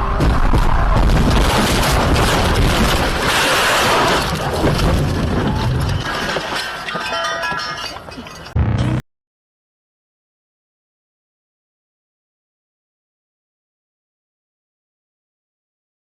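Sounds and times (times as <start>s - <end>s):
vehicle collision crashing: 0.1s - 9.0s.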